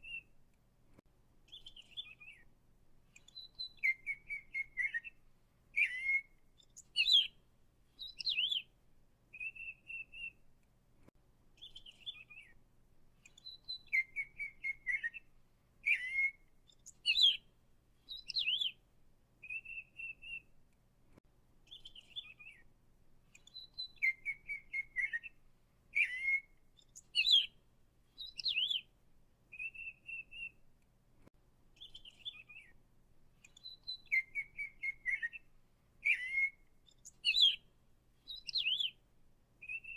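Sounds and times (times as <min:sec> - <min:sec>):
birds chirping and whistling: 0:01.5 - 0:02.4, 0:03.2 - 0:05.2, 0:05.8 - 0:07.3, 0:08.0 - 0:08.7, 0:09.4 - 0:10.4, 0:11.6 - 0:12.6, 0:13.3 - 0:15.2, 0:15.8 - 0:17.4, 0:18.1 - 0:18.8, 0:19.4 - 0:20.4, 0:21.7 - 0:22.6, 0:23.4 - 0:25.3, 0:25.9 - 0:27.5, 0:28.2 - 0:28.8, 0:29.5 - 0:30.5, 0:31.8 - 0:32.8, 0:33.5 - 0:37.6, 0:38.3 - 0:39.0, 0:39.6 - 0:39.9.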